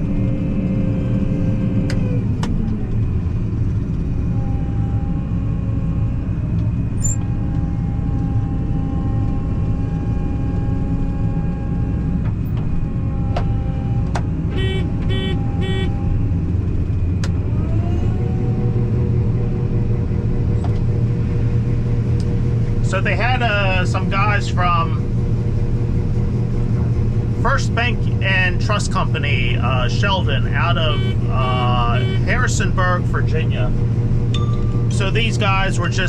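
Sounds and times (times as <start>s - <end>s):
combine harvester engine running: 0.0s - 36.0s
short electronic beeps: 14.6s - 16.0s, 30.9s - 32.3s.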